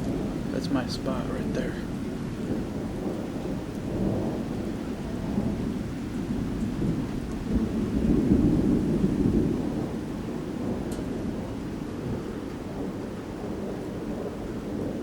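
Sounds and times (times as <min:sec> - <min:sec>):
rain falling: 0:00.0 - 0:15.0
thunder rumbling: 0:00.0 - 0:15.0.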